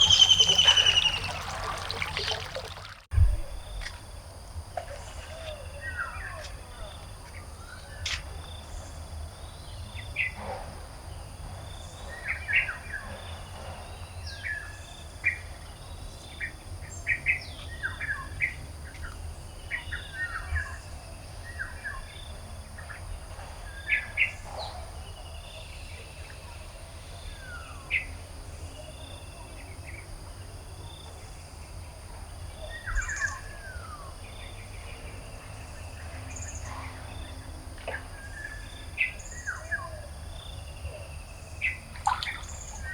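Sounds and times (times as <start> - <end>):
garden birds chirping: 0.0 - 10.4, 30.8 - 42.9
low rumble: 3.1 - 3.9.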